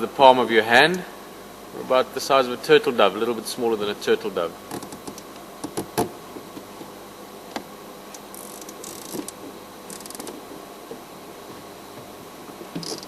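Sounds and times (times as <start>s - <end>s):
insects chirping in buzzy bursts: 7.0s - 13.0s.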